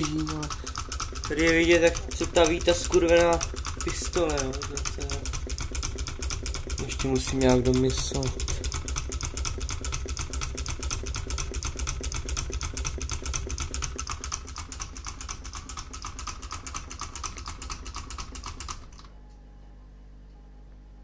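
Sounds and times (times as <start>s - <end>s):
small engine rapid clatter: 0.0s - 19.1s
faint low hum: 19.0s - 21.0s.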